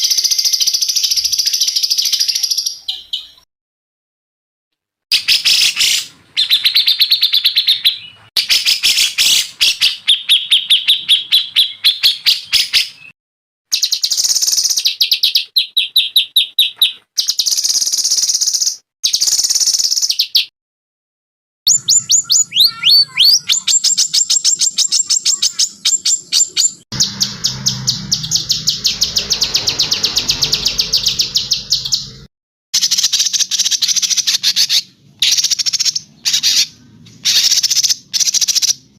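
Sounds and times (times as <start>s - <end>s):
songbird trills and chattering: 21.7s - 32.2s.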